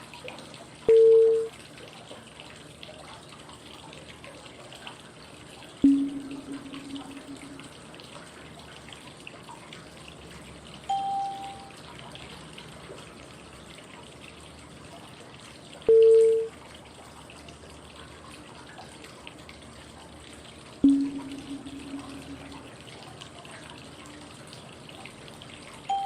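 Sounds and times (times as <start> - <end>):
low beep: 0.9 - 1.5, 5.8 - 7.8, 10.9 - 11.7, 15.9 - 16.5, 20.8 - 22.7
short high beep: 0.9 - 1.5, 5.8 - 7.7, 10.9 - 11.7, 15.9 - 16.5, 20.8 - 22.6
low tone: 5.8 - 7.9, 10.9 - 11.7, 20.8 - 22.9
flowing water white noise: 5.8 - 8.0, 10.5 - 11.9, 20.8 - 23.1.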